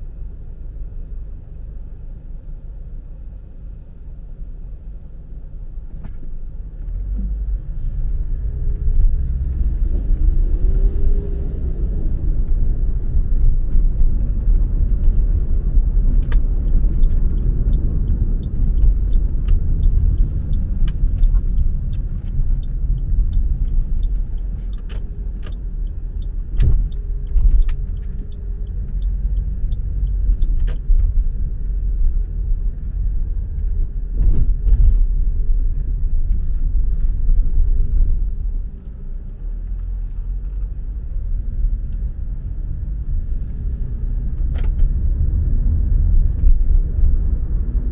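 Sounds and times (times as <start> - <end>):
car engine and tyre rumble: 0.0 - 47.9
sharp clicks and knocks: 16.1 - 29.8.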